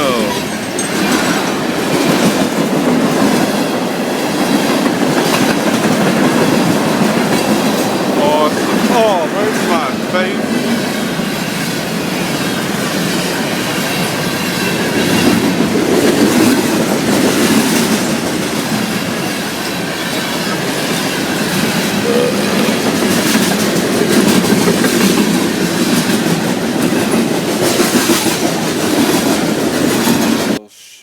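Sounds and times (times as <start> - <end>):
wheels clacking over rail joints: 0.0 - 9.1.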